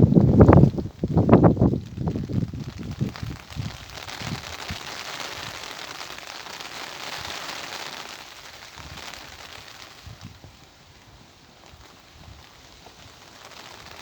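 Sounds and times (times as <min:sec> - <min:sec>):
wind buffeting microphone: 0:00.0 - 0:05.6, 0:08.8 - 0:13.3
rain pattering: 0:00.0 - 0:14.0.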